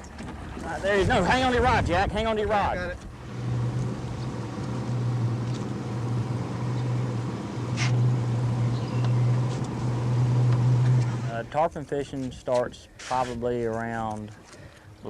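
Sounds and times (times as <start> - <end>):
boat engine humming: 3.0 - 11.8.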